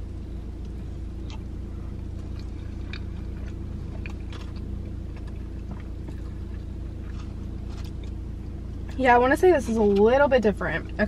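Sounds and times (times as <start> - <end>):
low hum: 0.0 - 11.0
wet mouth clicks chewing: 1.2 - 8.2.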